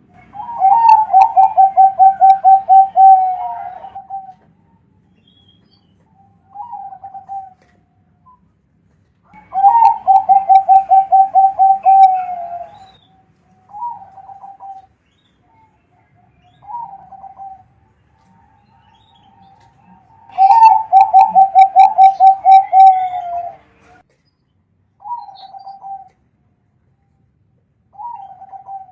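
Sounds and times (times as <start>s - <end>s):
dove cooing: 0.2s - 4.4s, 6.5s - 7.7s, 9.4s - 13.0s, 13.6s - 14.9s, 16.6s - 17.8s, 19.2s - 23.7s, 25.0s - 26.1s, 28.0s - 28.9s.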